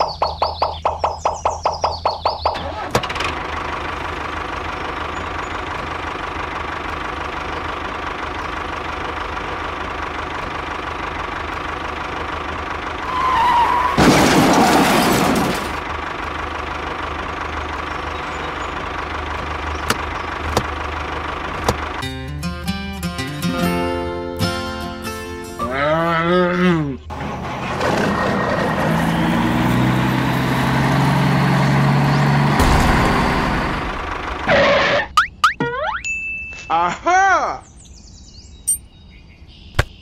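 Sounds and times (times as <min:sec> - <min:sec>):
loud rough noise: 0:31.3 - 0:35.1.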